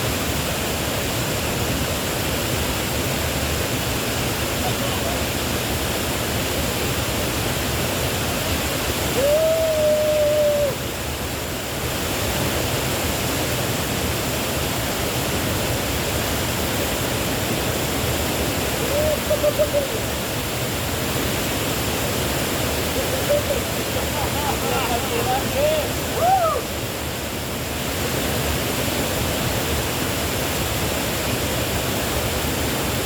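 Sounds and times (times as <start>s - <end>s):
waterfall pouring into pool: 0.0s - 33.0s
person calling out: 23.0s - 26.6s.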